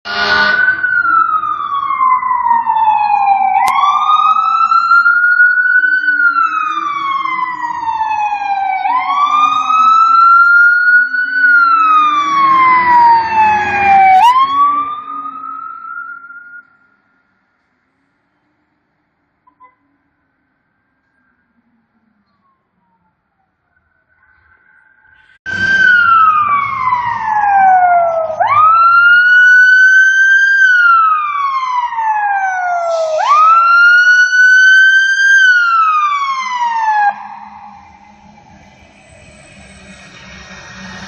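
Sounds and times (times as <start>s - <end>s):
fire truck siren wailing: 0.0s - 17.2s, 25.4s - 41.0s
truck engine rumble: 25.5s - 29.8s.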